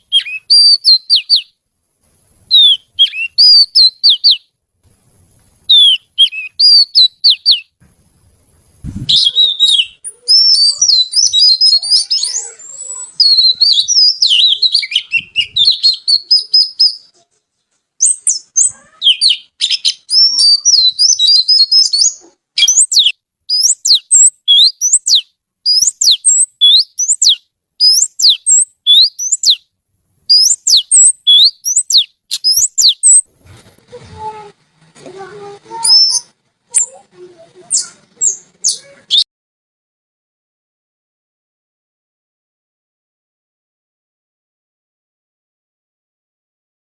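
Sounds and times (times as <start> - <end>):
bird warbling and whistling: 0.0 - 1.5, 2.5 - 4.4, 5.7 - 7.7, 8.9 - 17.2, 18.0 - 29.6, 30.3 - 33.2, 35.6 - 39.2.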